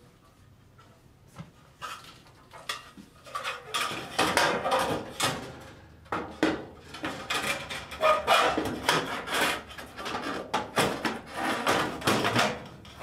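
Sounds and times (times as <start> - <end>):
sheet metal scraping and knocking: 2.7 - 13.0.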